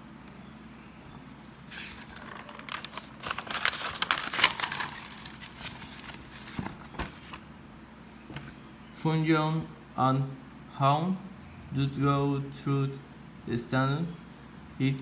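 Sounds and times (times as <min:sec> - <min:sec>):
rustling and crinkling handling: 0:01.0 - 0:07.5.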